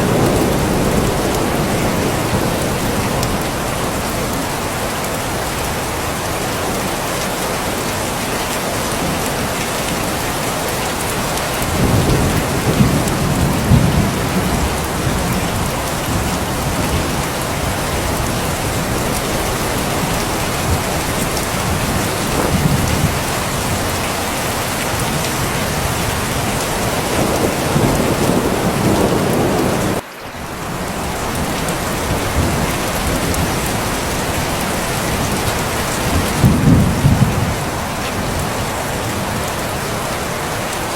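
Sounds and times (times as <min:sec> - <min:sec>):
heavy rain: 0:00.0 - 0:40.9
low rumbles of thunder: 0:11.6 - 0:30.0, 0:31.0 - 0:39.5.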